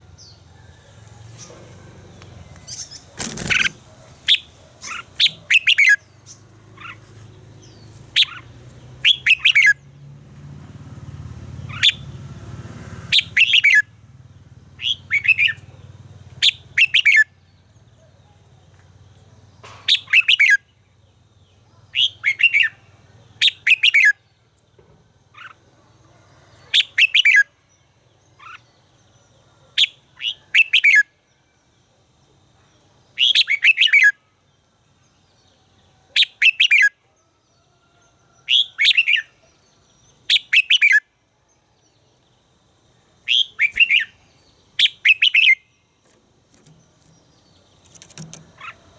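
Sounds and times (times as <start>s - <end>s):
bird singing warbled notes: 43.3s - 44.2s.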